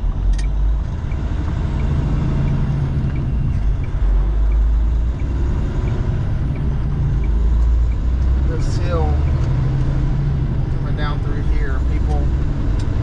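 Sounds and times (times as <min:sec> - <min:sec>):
road noise: 0:00.0 - 0:13.0
truck engine rumbling: 0:00.0 - 0:13.0
faint repeating tick: 0:00.4 - 0:09.6.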